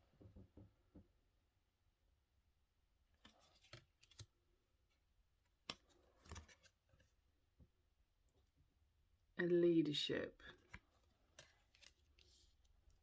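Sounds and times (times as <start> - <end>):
cards clicking and rustling: 3.2 - 4.3, 5.7 - 6.8, 10.6 - 12.6.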